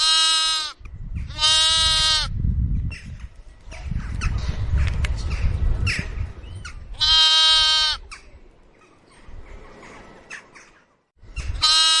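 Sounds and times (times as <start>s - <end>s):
goat bleating: 0.0s - 2.3s, 7.0s - 8.0s, 11.6s - 12.0s.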